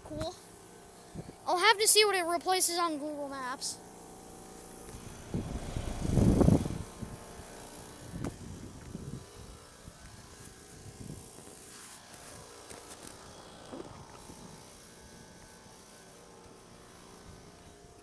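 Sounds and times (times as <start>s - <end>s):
air conditioner fan humming: 0.5s - 8.2s.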